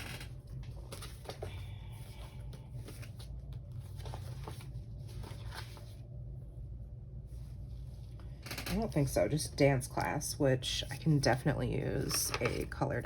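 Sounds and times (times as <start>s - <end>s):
steady low hum: 0.0s - 13.0s
paper rustling: 0.6s - 6.0s.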